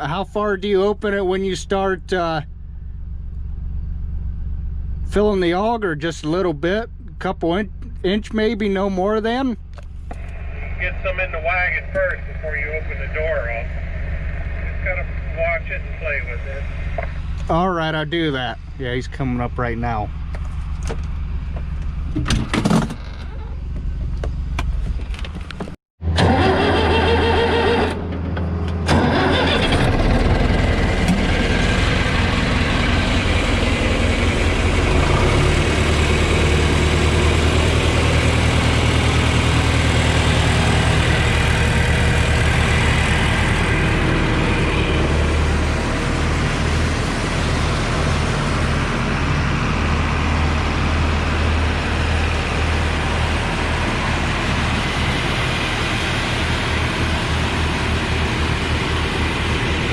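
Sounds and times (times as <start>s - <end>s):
farm machine engine running: 23.6s - 59.9s.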